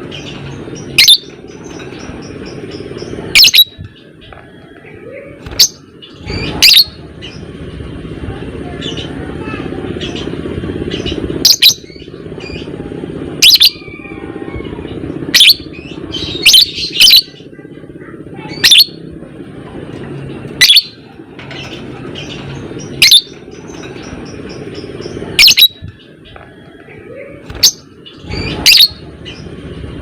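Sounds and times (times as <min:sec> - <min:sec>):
steady low hum: 0:00.0 - 0:30.0
bird shrill calls: 0:00.2 - 0:01.8, 0:03.3 - 0:03.8, 0:05.5 - 0:07.4, 0:15.3 - 0:17.3, 0:18.5 - 0:19.0, 0:20.6 - 0:21.0, 0:22.2 - 0:23.9, 0:24.8 - 0:25.9, 0:27.5 - 0:29.4.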